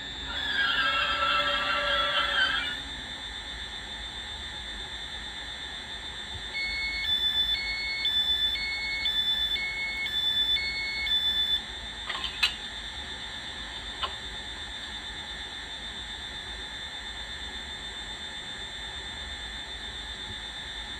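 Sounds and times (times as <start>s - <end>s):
two-tone warning alarm: 0.0s - 2.8s, 3.7s - 16.0s
steady high whine: 0.0s - 20.9s.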